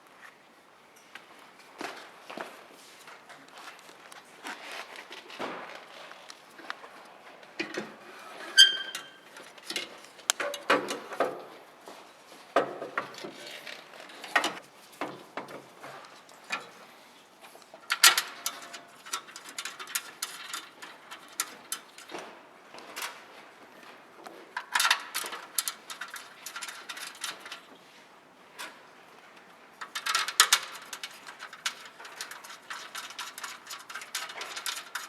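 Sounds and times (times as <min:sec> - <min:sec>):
tools clicking and knocking: 0:17.9 - 0:22.2, 0:24.6 - 0:27.7, 0:29.8 - 0:35.0.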